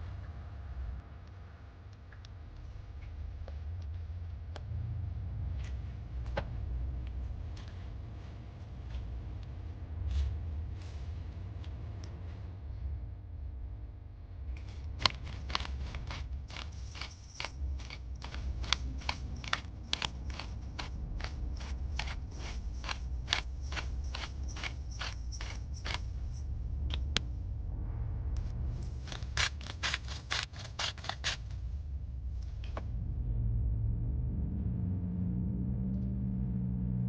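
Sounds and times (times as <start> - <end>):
low hum: 0.0 - 37.0
food being cut: 14.9 - 26.1, 29.1 - 31.4.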